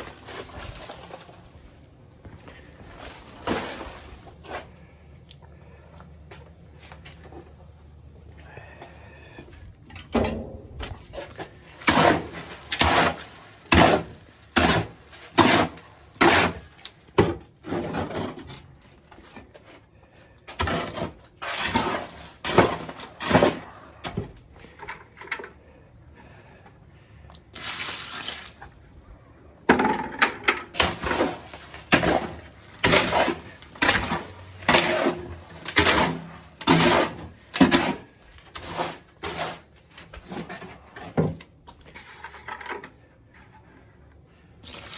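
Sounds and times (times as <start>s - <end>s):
tool scraping wet concrete: 10.8s - 18.7s, 20.5s - 24.2s, 30.7s - 41.2s.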